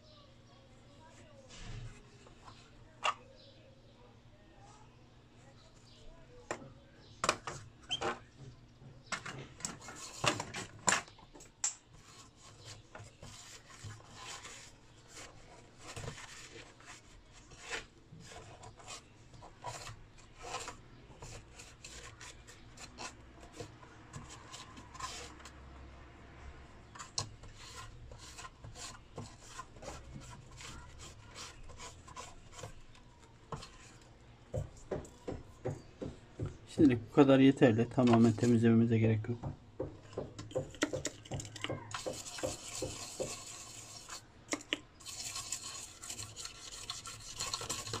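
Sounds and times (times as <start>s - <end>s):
scraping and rubbing circuit board: 11.9s - 25.6s, 26.9s - 34.1s, 40.9s - 48.0s.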